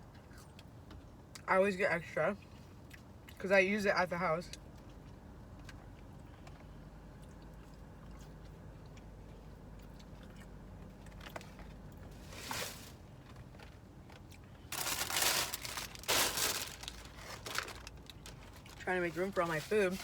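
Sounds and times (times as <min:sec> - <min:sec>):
takeout packaging rustling: 0:12.1 - 0:13.6, 0:14.7 - 0:20.0
packaging crinkling: 0:14.7 - 0:18.9.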